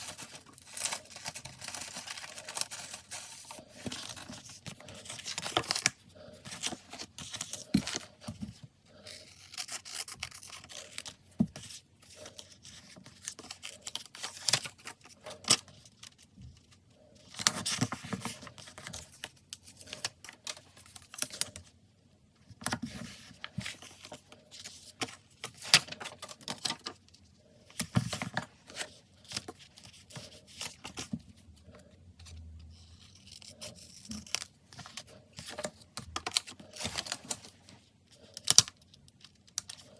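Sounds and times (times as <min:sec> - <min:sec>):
paper rustling: 0:00.0 - 0:15.8.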